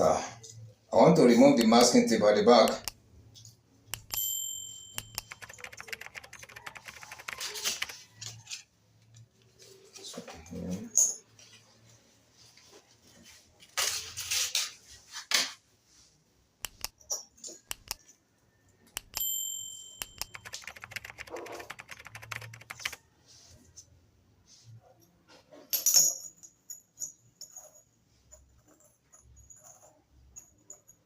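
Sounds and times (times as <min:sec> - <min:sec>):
short metallic ring: 0:04.2 - 0:05.2, 0:19.2 - 0:20.2.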